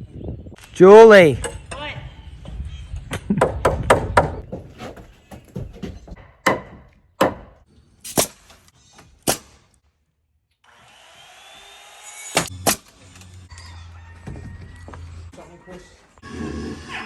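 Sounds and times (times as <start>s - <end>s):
knocks and bangs on wood: 3.4s - 7.6s.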